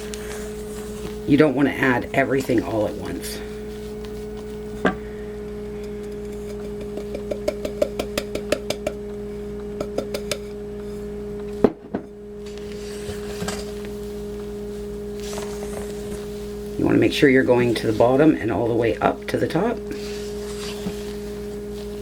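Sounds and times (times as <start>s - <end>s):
steady low hum: 0.0s - 22.0s
spatula clicking against bowl: 5.9s - 9.0s
sharp knocks: 6.6s - 9.0s.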